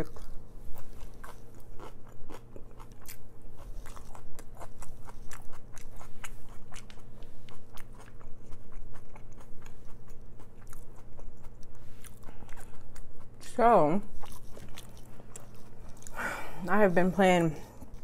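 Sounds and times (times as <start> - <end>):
chewing crunchy fries: 0.0 - 18.0.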